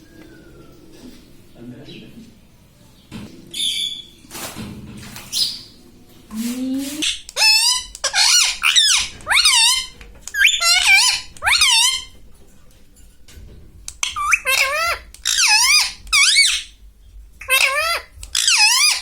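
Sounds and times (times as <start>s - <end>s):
parrot squawking: 7.0s - 12.2s, 14.0s - 16.8s, 17.4s - 19.0s.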